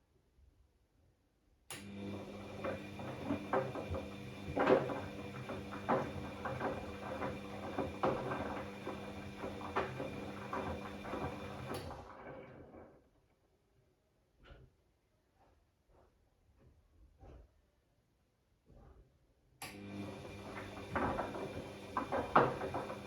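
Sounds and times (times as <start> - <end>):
washing machine motor hum: 1.8 - 12.2, 19.7 - 23.0
laundry tumbling in drum: 20.5 - 23.0.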